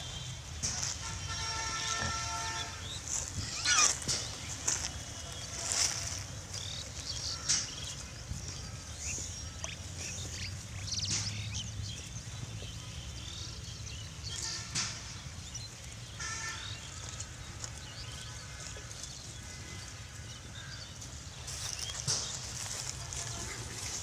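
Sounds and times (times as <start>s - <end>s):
animal calls and chirps: 2.3s - 12.1s.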